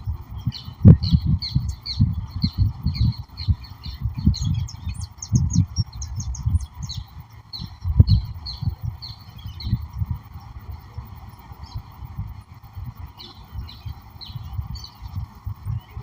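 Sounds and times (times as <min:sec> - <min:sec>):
birds chirping: 0:00.0 - 0:16.0
steady hiss: 0:00.0 - 0:16.0.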